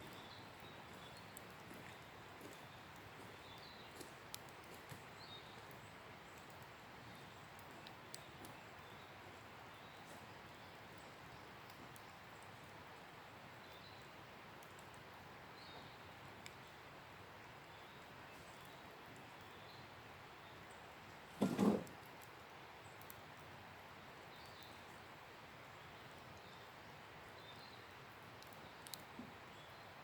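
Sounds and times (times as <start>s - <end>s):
campfire crackling and popping: 0.0s - 29.7s
faint fire hiss: 0.0s - 30.0s.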